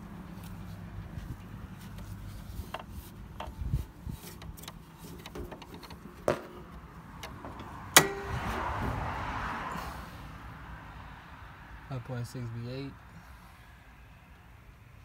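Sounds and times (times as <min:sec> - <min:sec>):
light clicks and knocks: 0:04.2 - 0:08.2
sharp ringing knock: 0:08.0 - 0:08.4.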